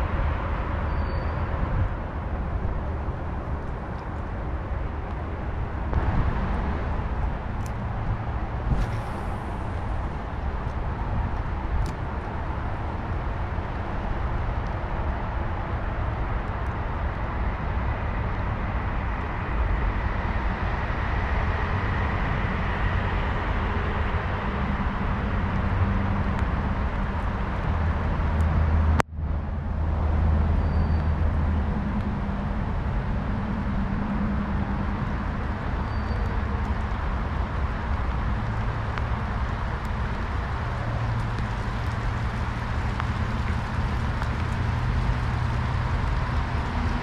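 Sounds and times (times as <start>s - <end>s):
low hum: 0.0s - 13.6s
vehicle rumble on the move: 0.0s - 47.0s.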